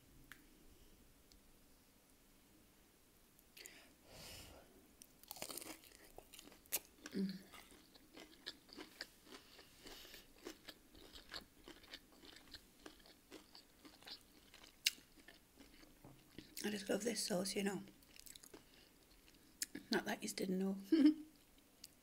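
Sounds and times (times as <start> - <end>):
crunching and chewing food: 5.0 - 16.7, 17.8 - 19.9.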